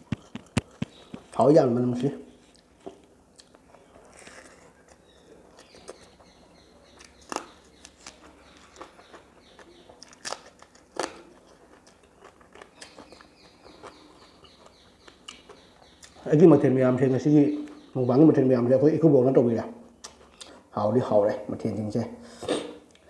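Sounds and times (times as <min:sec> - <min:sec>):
faint bird chirping: 0:00.6 - 0:02.9, 0:03.7 - 0:10.4, 0:12.6 - 0:21.9
chewing with wet mouth smacks: 0:07.0 - 0:16.2.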